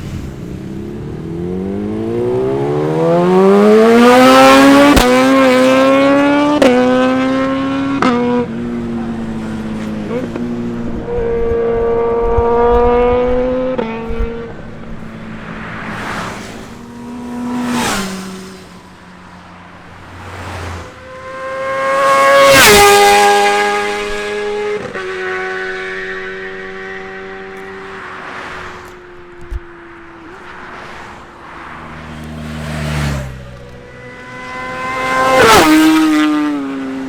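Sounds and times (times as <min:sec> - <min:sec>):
motorbikes passing at high revs: 0:00.0 - 0:37.0.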